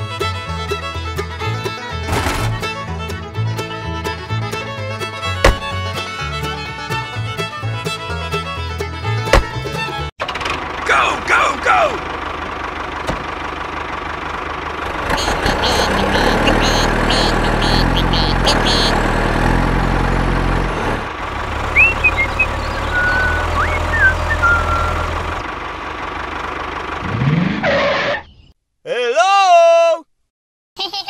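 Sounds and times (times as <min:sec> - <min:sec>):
tractor engine rattling: 0:00.0 - 0:27.3
short high chirps: 0:21.7 - 0:25.1.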